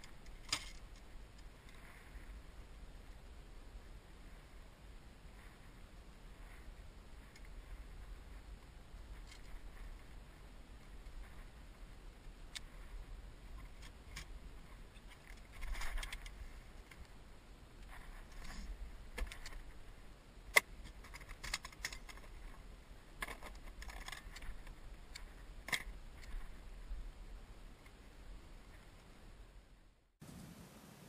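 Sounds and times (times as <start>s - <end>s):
fishing gear clinking and rattling: 0.0s - 1.1s, 15.1s - 16.3s, 20.8s - 22.6s, 23.2s - 26.4s.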